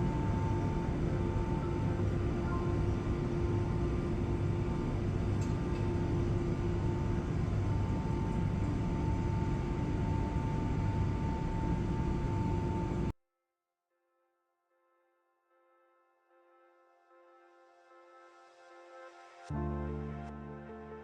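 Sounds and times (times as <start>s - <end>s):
machinery humming: 0.0s - 13.1s.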